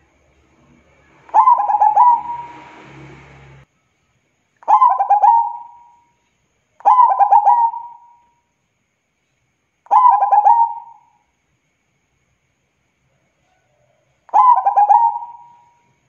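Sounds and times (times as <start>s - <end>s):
dove cooing: 1.3s - 2.7s, 4.7s - 5.9s, 6.8s - 8.2s, 9.9s - 11.1s, 14.3s - 15.7s.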